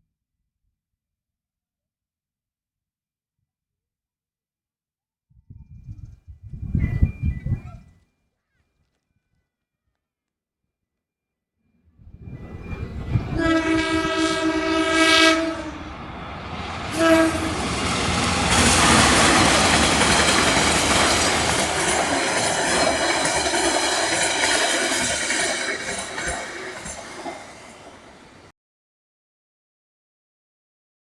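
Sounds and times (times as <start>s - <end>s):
passing train rushing: 12.1s - 28.5s
train horn: 13.2s - 16.1s, 16.7s - 23.4s
wheels clattering over rail joints: 17.6s - 28.5s.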